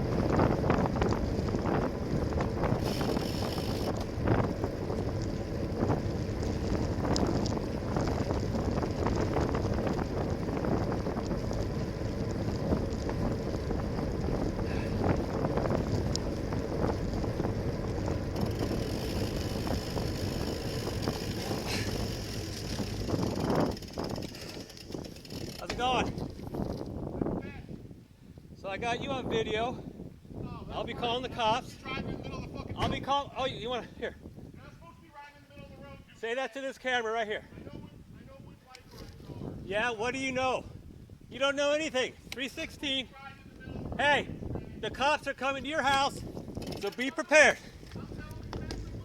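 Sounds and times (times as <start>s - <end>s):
low road rumble: 0.0s - 36.3s, 37.4s - 49.0s
wind rushing over microphone: 0.0s - 36.3s, 37.3s - 49.0s.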